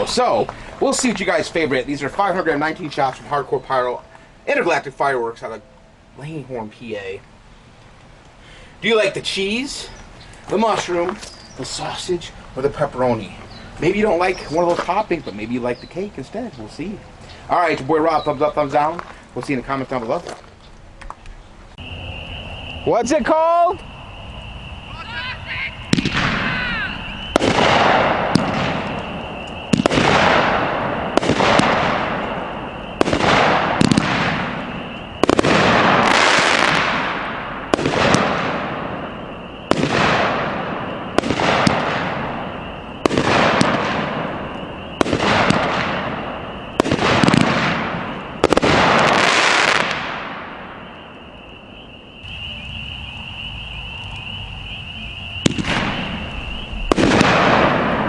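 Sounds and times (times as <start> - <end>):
steady background noise: 0.0 - 58.0
firework shots with hissing tails: 23.6 - 58.0.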